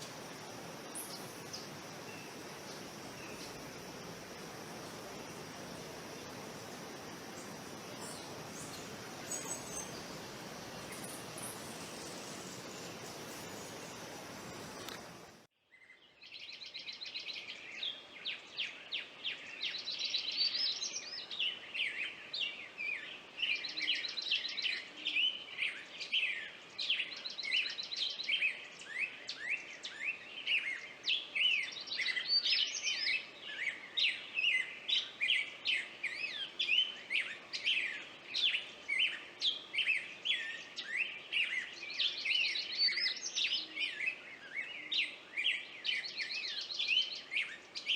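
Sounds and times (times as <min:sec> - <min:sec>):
high insect-like hiss: 0:00.0 - 0:15.5
songbirds singing: 0:00.0 - 0:47.9.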